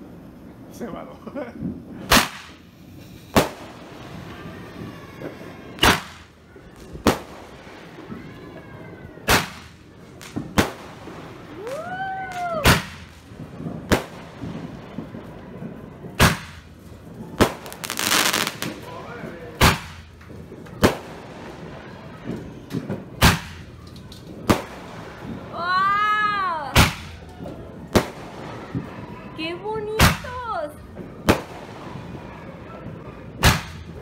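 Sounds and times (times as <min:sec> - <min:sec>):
fireworks bangs: 0:00.0 - 0:34.0
rising and falling wail: 0:11.6 - 0:12.7.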